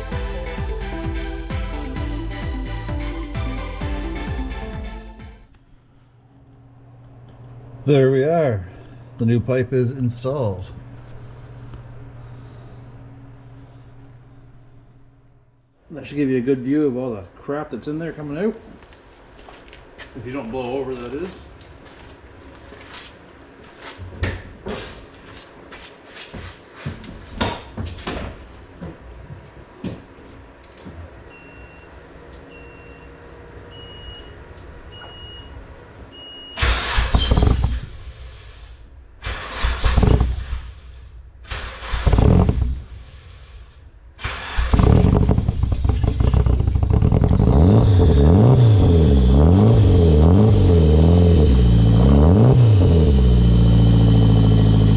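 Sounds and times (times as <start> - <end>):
engine cranking: 36.6 - 38.6, 39.2 - 43.2, 44.2 - 54.9
car engine running loudly: 36.9 - 38.1, 39.5 - 40.6, 41.6 - 42.9, 44.6 - 54.9.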